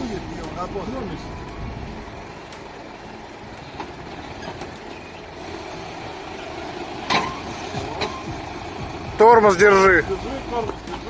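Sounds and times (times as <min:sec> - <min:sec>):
heavy truck engine rumbling: 0:00.0 - 0:11.0.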